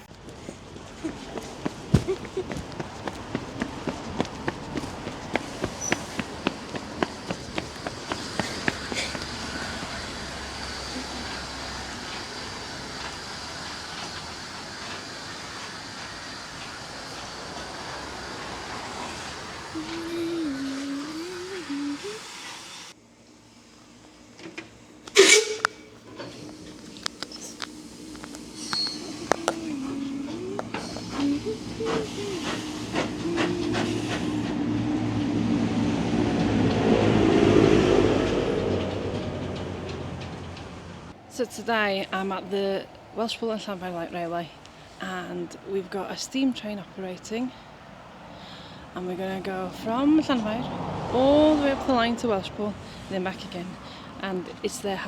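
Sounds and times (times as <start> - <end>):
steam train rumbling: 0.0 - 55.0
steam hissing: 4.4 - 39.2.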